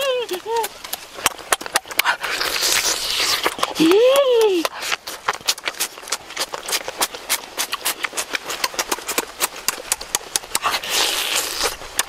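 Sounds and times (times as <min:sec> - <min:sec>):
wet lip smacks and chewing clicks: 0:00.3 - 0:03.8, 0:04.6 - 0:12.0
mouth sucking sound: 0:01.8 - 0:03.9, 0:04.6 - 0:12.0.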